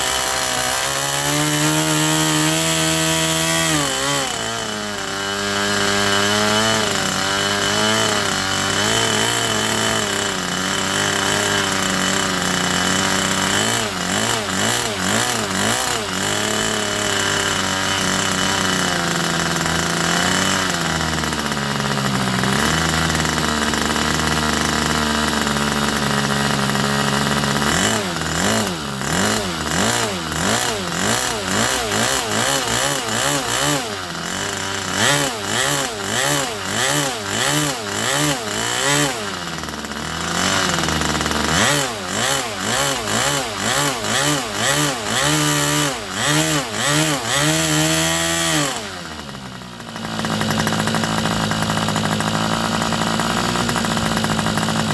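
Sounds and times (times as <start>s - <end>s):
model aircraft engine running: 0.0s - 54.9s.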